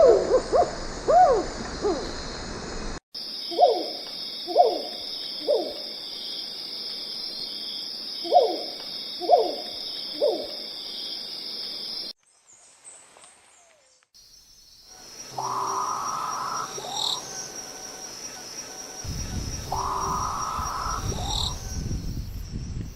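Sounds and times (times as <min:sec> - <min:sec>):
high insect chorus: 0:00.0 - 0:12.2, 0:13.3 - 0:22.9
owl hooting: 0:03.5 - 0:05.8, 0:08.2 - 0:10.6, 0:15.3 - 0:21.7.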